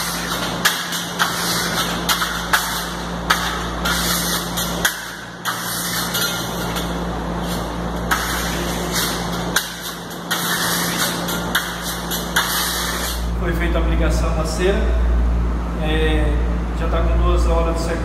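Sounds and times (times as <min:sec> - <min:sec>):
spatula scraping wax on wall: 0:00.0 - 0:13.2
steady low hum: 0:00.0 - 0:18.0.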